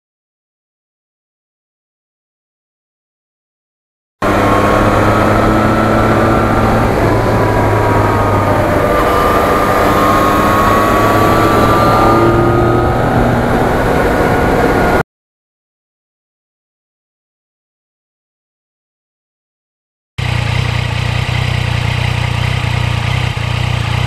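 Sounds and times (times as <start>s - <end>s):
motorcycle engine running: 4.2s - 15.0s, 20.2s - 24.0s
wind and road noise: 4.2s - 15.0s.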